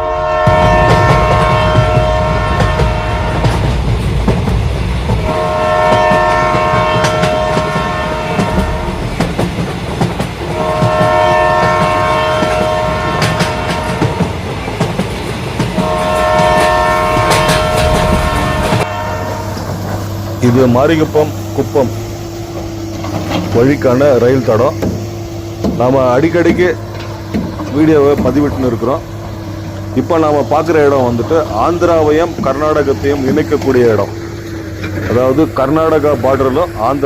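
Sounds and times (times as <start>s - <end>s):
train horn blasts: 0.0s - 3.8s, 5.2s - 9.5s, 10.5s - 14.5s, 15.7s - 24.2s
low train rumble: 0.0s - 37.0s
train wheels clattering on rails: 0.0s - 37.0s.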